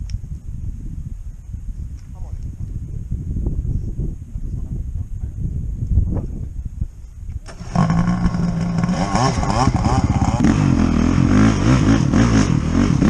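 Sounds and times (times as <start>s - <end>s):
boat engine running: 7.5s - 10.6s.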